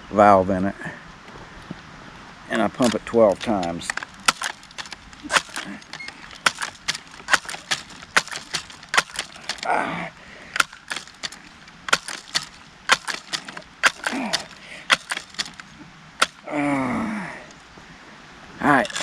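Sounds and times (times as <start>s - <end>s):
air rifle pump lever clicks: 2.8s - 9.7s, 10.5s - 16.4s.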